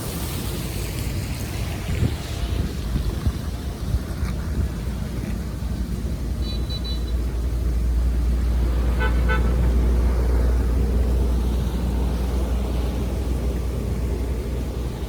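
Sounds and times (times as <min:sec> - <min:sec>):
horn toots: 0:08.9 - 0:09.8.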